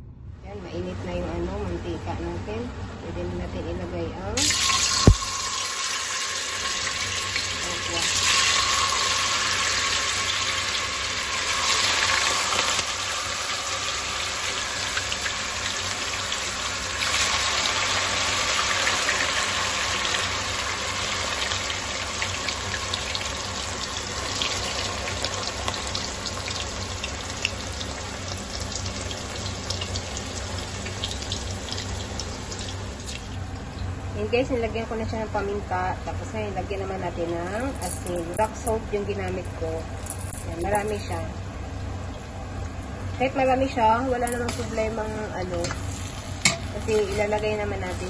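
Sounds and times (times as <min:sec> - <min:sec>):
tofu deep-frying in hot oil: 0:04.4 - 0:34.0, 0:44.5 - 0:48.0
oil crackling and popping: 0:04.5 - 0:20.8, 0:21.4 - 0:33.9.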